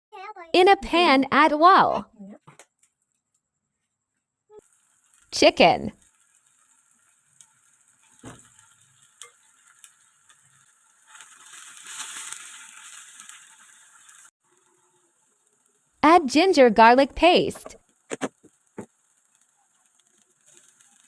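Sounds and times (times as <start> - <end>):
chicken sizzling in hot oil: 4.6 - 21.0.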